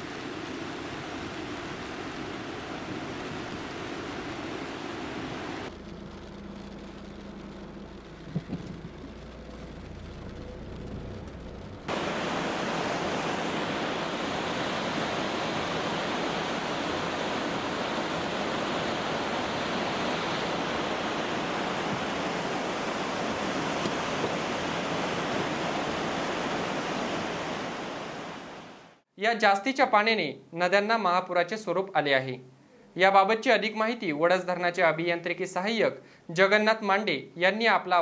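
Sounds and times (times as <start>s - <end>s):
low hum: 2.6s - 12.5s
loud rush of floodwater: 11.9s - 29.0s.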